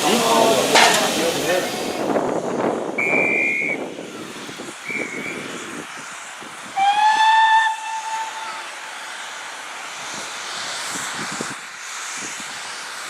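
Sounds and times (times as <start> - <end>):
guard's whistle blasts: 3.0 - 3.8
steam locomotive whistle: 3.0 - 3.9, 4.8 - 5.5, 6.8 - 8.7.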